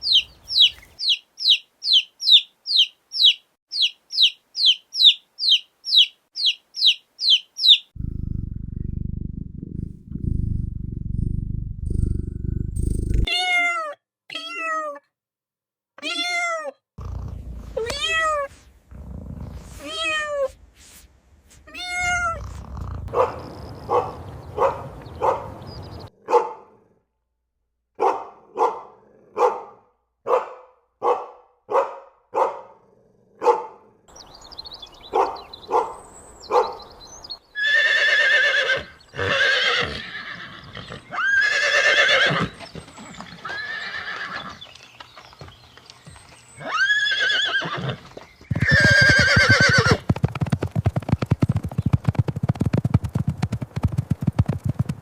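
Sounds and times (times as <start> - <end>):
horse whinnying: 37.6 - 44.6, 46.6 - 50.1
horse hoof clops: 44.4 - 46.5, 48.0 - 55.0.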